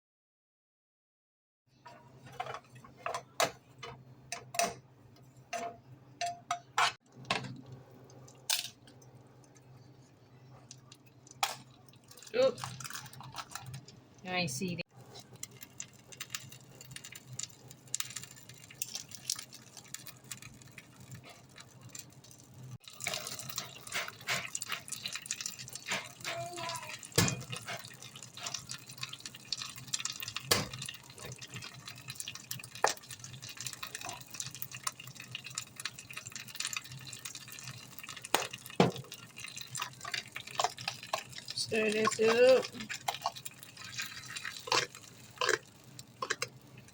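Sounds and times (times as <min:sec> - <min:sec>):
liquid splashing and dripping: 0:15.5 - 0:46.9.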